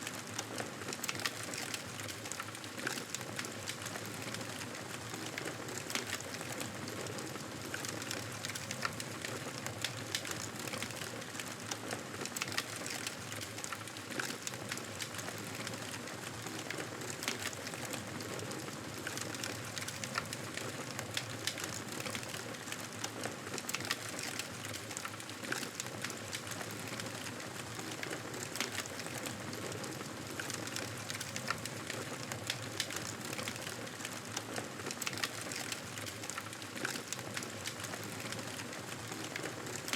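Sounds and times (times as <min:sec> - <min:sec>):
wood fire crackling: 0:00.2 - 0:39.9.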